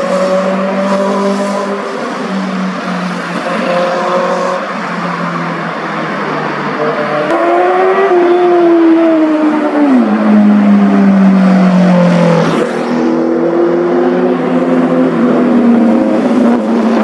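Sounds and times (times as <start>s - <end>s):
motorcycle engines revving past: 11.8s - 15.2s.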